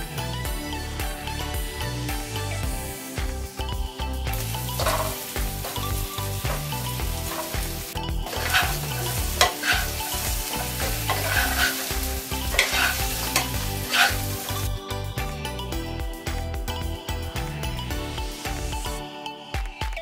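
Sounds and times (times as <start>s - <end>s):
pork chops sizzling in wok: 2.8s - 14.8s
wooden spatula scraping wok: 4.8s - 14.7s.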